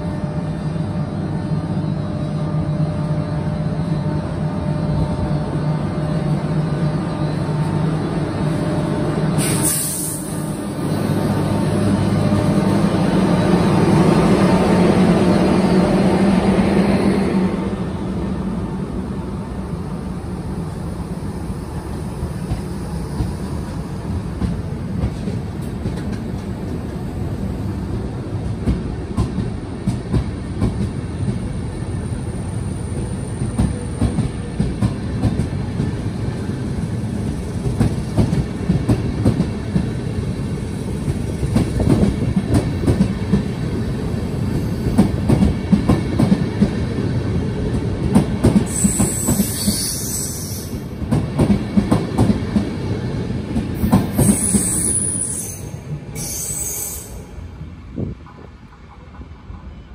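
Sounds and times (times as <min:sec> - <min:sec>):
train coaches rumbling: 0:00.0 - 0:59.9.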